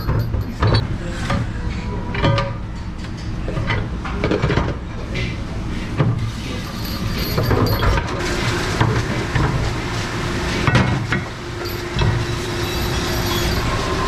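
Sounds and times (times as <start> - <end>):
dishes knocking and clattering: 3.6 - 5.4
low machine hum: 4.9 - 14.0.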